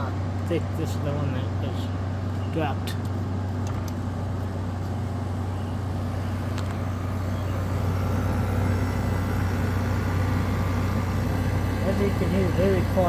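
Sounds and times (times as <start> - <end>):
window air conditioner running: 0.0 - 13.0.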